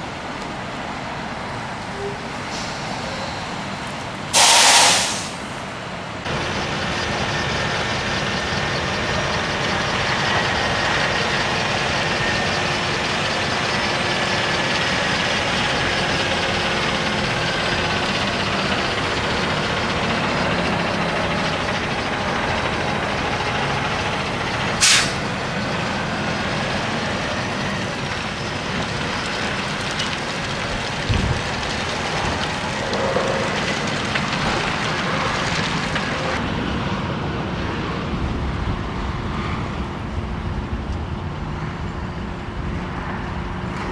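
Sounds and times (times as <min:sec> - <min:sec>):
traffic: 0:00.0 - 0:43.9
truck engine running: 0:00.1 - 0:43.9
air brakes hissing: 0:01.9 - 0:03.6, 0:04.3 - 0:05.8, 0:24.8 - 0:25.4.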